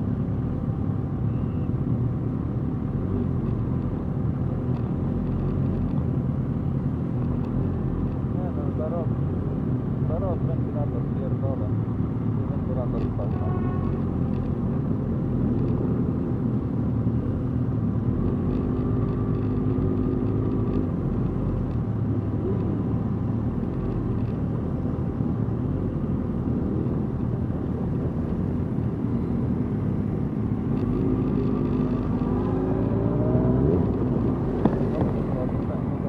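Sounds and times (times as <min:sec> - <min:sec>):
motorcycle engines rumbling: 0:06.6 - 0:36.0.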